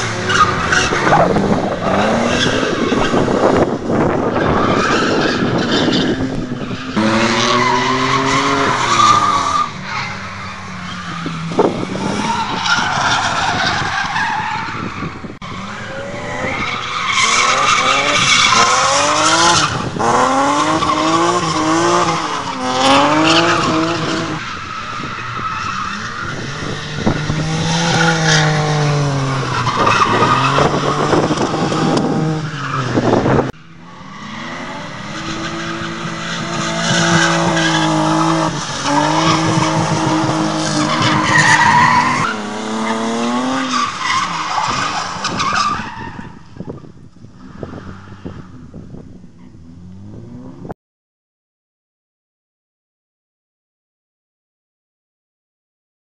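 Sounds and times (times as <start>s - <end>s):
car engines revving: 0.0s - 50.7s.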